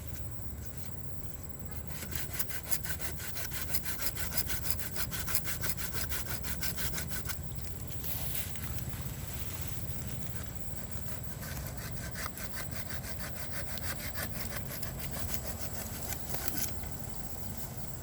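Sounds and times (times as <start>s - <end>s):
hand saw cutting bamboo: 1.9s - 7.4s, 11.0s - 16.8s.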